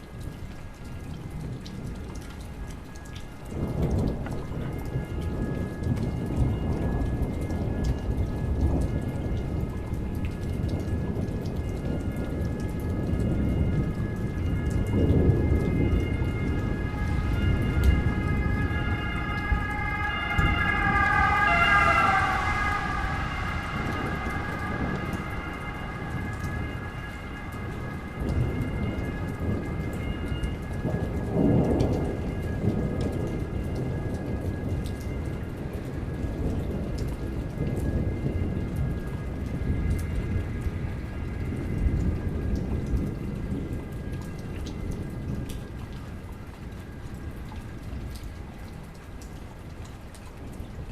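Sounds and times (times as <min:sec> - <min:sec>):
heavy rain pattering: 0:00.0 - 0:50.9
thunder rumbling: 0:00.0 - 0:50.9
wavering high-pitched sound: 0:16.4 - 0:30.0.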